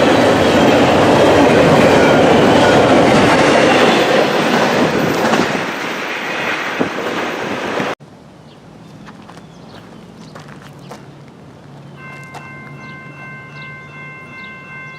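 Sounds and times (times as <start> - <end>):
freight train wheels rattling: 0.0 - 8.0.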